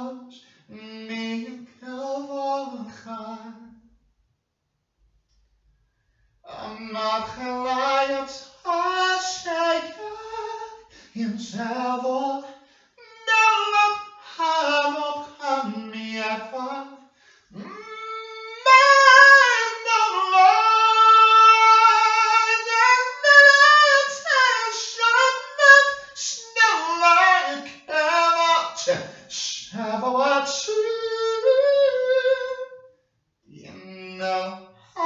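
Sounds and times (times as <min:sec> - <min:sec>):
high voice singing unaccompanied: 0:06.5 - 0:32.8, 0:33.5 - 0:35.0.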